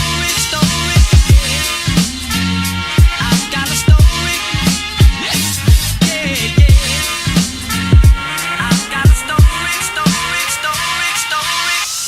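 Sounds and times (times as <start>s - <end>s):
steady synth tones: 0.0s - 11.3s
deep kick drum hits: 6.6s - 6.9s, 7.9s - 8.2s, 9.1s - 9.6s.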